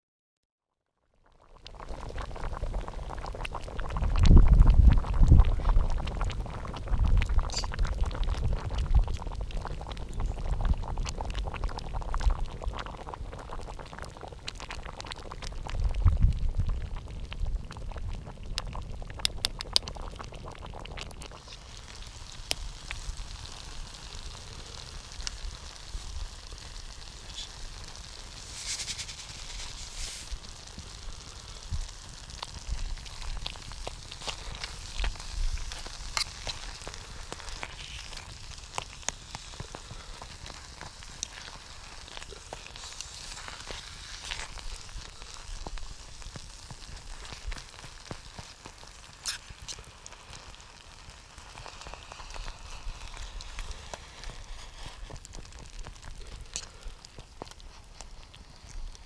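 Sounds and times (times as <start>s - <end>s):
campfire crackling: 1.2s - 59.0s
short hiss: 27.2s - 30.5s.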